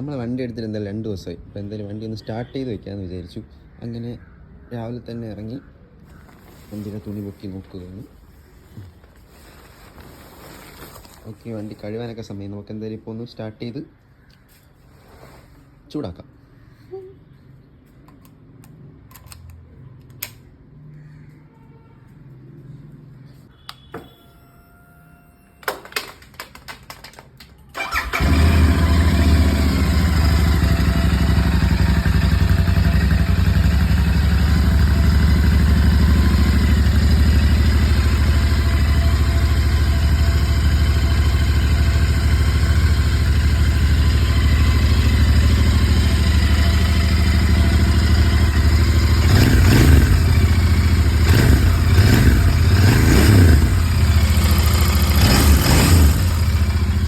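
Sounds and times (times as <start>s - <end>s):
starter clicks: 18.0s - 20.5s
motorcycle engine idling: 27.8s - 57.0s.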